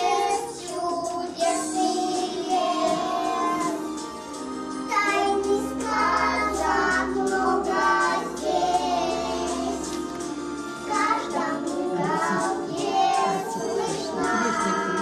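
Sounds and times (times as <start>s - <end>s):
instrumental backing track: 0.0s - 15.0s
girl singing: 10.9s - 15.0s.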